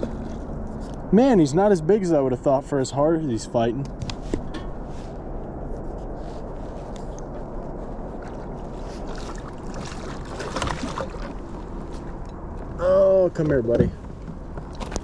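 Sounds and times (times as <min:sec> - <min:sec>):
low rumble: 0:00.0 - 0:15.0
water splashing and sloshing: 0:06.7 - 0:12.8.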